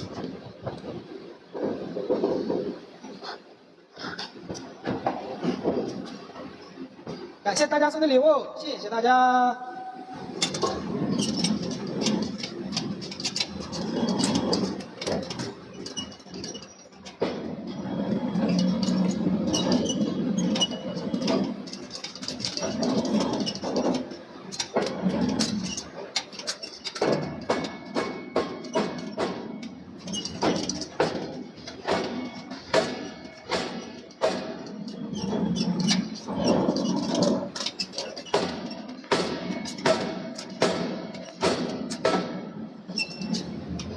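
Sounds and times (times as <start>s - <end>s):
machinery rumbling: 9.4s - 40.4s
metallic clanks and knocks: 10.1s - 43.9s.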